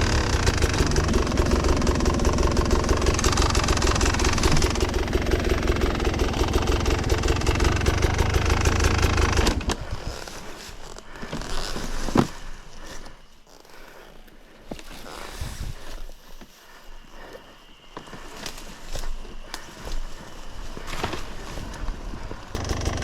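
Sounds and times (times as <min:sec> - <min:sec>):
motorcycle engine running: 0:00.0 - 0:09.8, 0:22.5 - 0:23.0.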